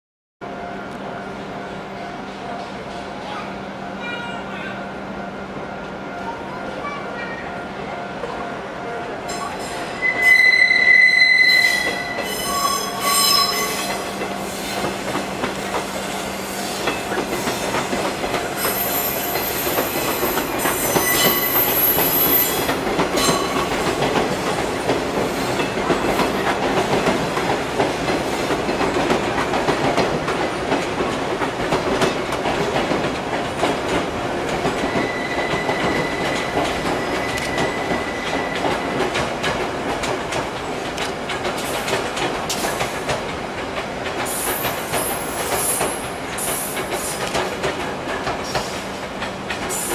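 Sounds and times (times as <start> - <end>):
train wheels squealing: 9.4 - 14.8, 18.6 - 23.7, 34.8 - 39.1, 44.3 - 47.2
rail joint clacks: 11.2 - 49.9
train rolling rumble: 11.8 - 49.9.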